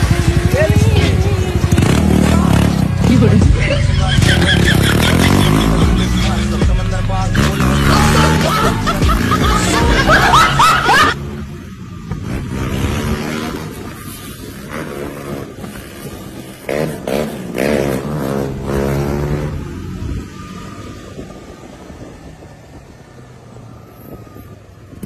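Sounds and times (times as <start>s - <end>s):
hip-hop music with rapping: 0.0s - 11.2s
motorcycle engine revving: 0.0s - 23.0s.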